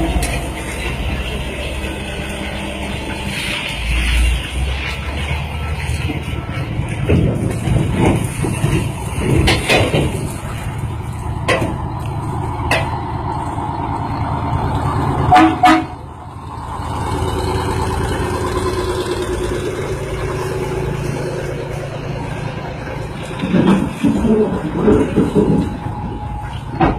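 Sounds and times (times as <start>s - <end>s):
truck engine running: 0.0s - 26.9s
horn toots: 15.2s - 16.0s.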